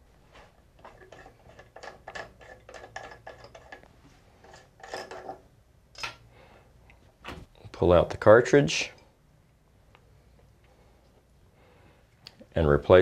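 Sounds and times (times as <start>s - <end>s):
small metal clicks and scrapes: 0.8s - 5.4s.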